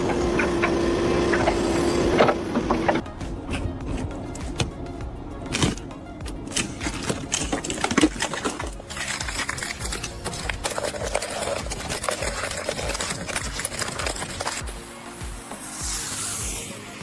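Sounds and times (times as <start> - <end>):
ice crunching and crackling: 6.4 - 15.0.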